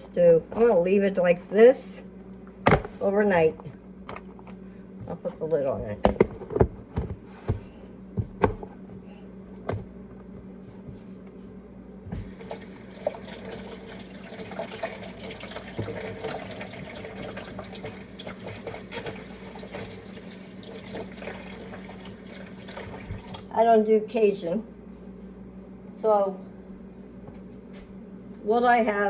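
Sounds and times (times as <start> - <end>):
tap running into sink: 14.5 - 20.0.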